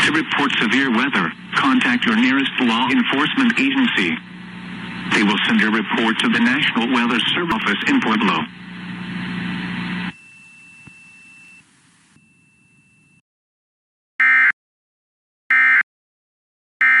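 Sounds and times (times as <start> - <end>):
buzzy data bursts: 7.5 - 10.1.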